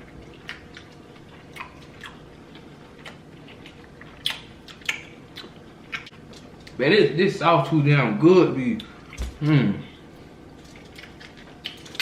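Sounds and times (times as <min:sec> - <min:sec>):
wet chewing: 0:00.0 - 0:06.8, 0:10.5 - 0:12.0
lip smacks: 0:03.0 - 0:06.1.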